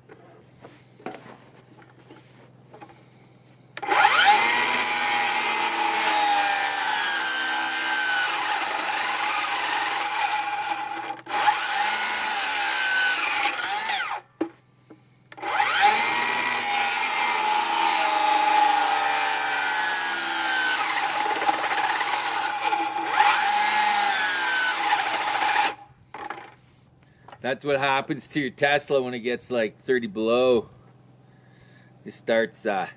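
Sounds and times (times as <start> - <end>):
cordless power tool cutting wood: 3.8 - 14.3, 15.3 - 26.5.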